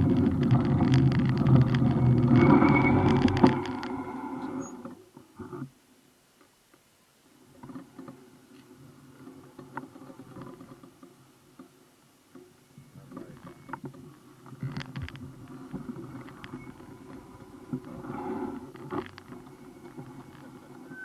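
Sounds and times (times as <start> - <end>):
moving bike rumble: 0.0 - 4.9.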